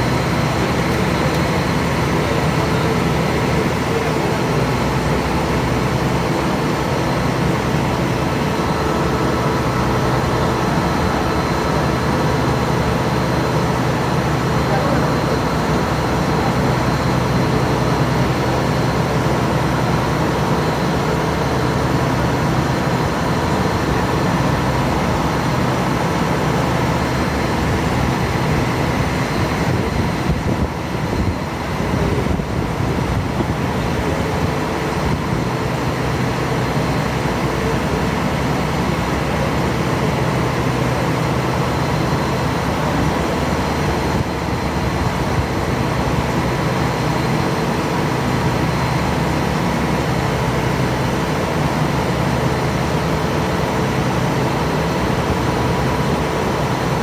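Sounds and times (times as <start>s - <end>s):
ferry engine drone: 0.0s - 57.0s.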